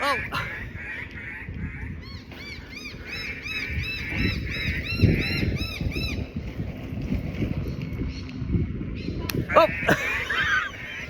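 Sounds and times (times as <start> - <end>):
bird alarm calls: 0.0 - 6.3.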